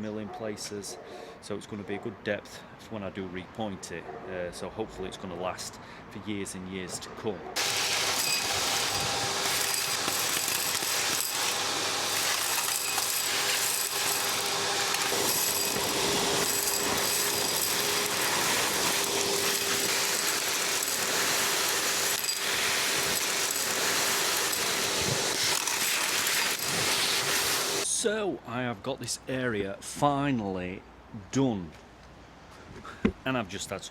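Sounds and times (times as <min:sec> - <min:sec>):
debris clicking through hose: 0:07.6 - 0:27.8
vacuum running: 0:07.6 - 0:27.8.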